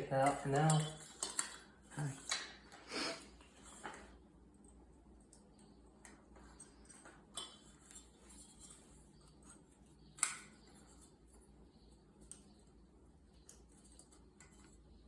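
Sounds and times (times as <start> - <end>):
small metal parts clinking: 0.2 - 2.7.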